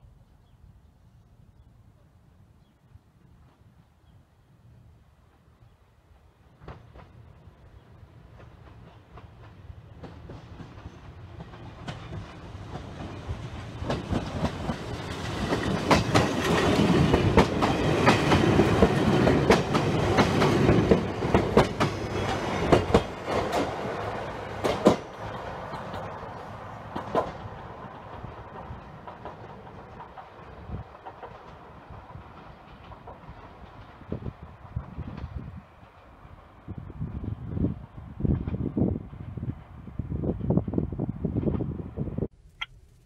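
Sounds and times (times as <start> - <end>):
electric train passing: 5.2 - 42.3
wheels clacking over rail joints: 8.3 - 36.4.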